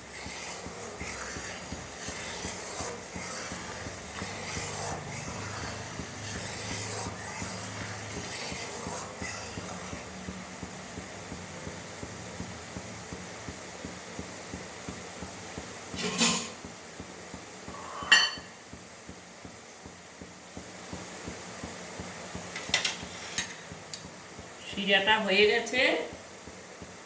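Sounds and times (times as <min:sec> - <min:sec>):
steady low hiss: 0:00.0 - 0:27.0
utensil clattering against pot: 0:16.0 - 0:16.7, 0:22.5 - 0:24.2.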